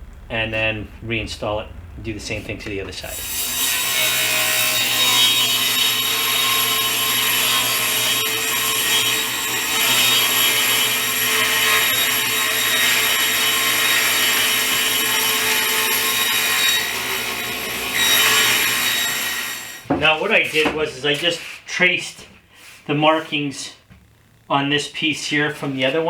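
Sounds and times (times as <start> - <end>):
power tool cutting wood: 3.0 - 19.9.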